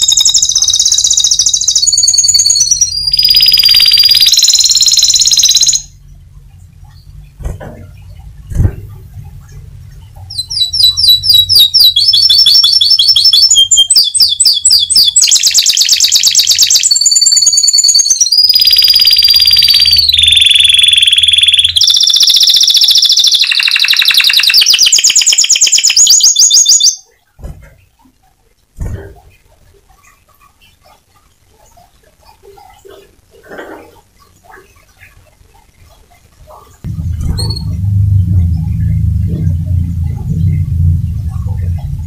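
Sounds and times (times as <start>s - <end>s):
canary singing trills: 0.0s - 6.0s, 9.4s - 27.1s, 29.2s - 42.0s
low thump: 36.9s - 42.0s.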